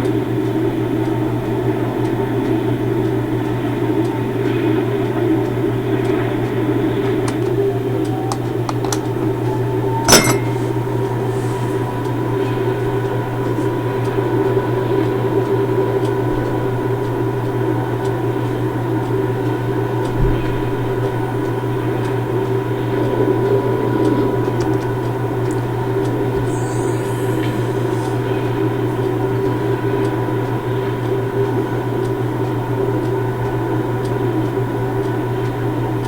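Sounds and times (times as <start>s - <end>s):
low mechanical hum: 0.0s - 36.0s
sharp metallic clank: 10.1s - 10.8s.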